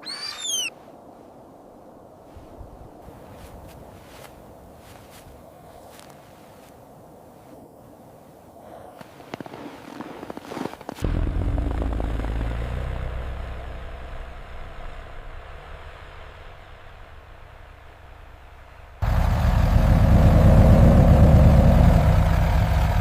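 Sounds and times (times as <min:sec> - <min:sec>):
low engine rumble: 0:11.0 - 0:23.0.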